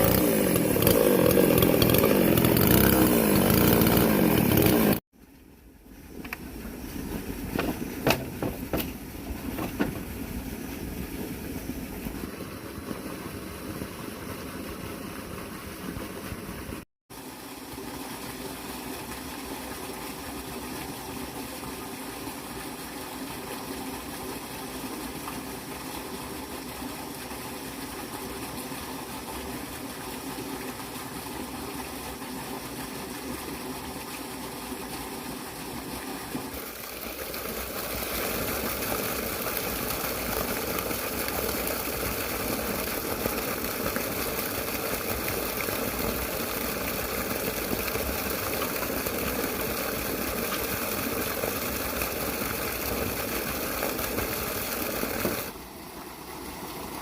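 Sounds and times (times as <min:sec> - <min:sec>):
small engine running: 0:00.0 - 0:05.0, 0:36.4 - 0:55.5
sharp knocks: 0:07.5 - 0:10.1.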